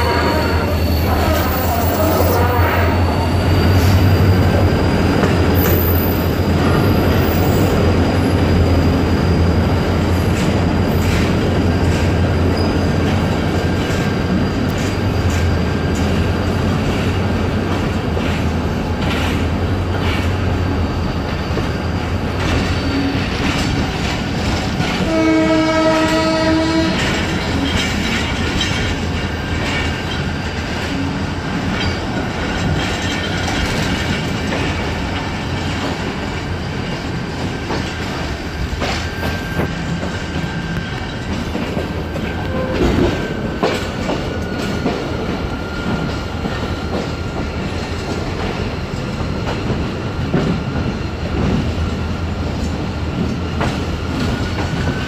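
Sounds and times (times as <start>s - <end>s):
train horn blowing: 0.0s - 3.5s, 25.0s - 27.3s, 42.3s - 43.2s
diesel locomotive engine drone: 0.0s - 55.0s.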